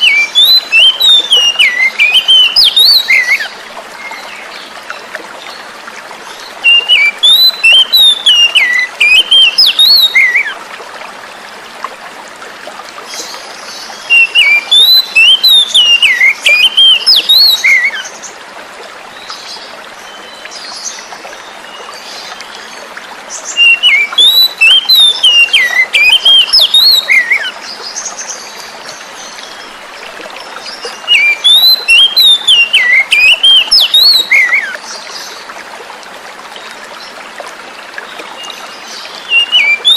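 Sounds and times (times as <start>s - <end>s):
bird singing whistled notes: 0.0s - 3.5s, 6.6s - 10.6s, 14.1s - 18.1s, 23.5s - 27.5s, 30.7s - 34.8s, 39.2s - 39.9s
running stream water: 0.0s - 39.9s.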